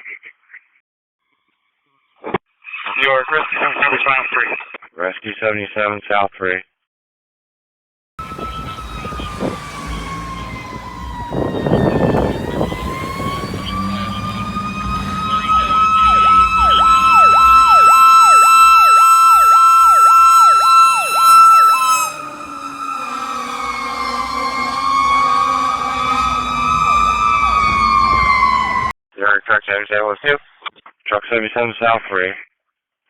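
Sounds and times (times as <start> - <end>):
fast yelping siren: 8.2 - 28.9
wailing siren: 8.2 - 28.9.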